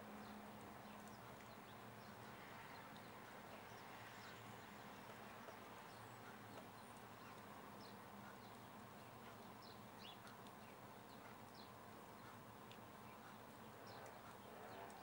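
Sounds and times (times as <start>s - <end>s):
faint steady rain: 0.0s - 15.0s.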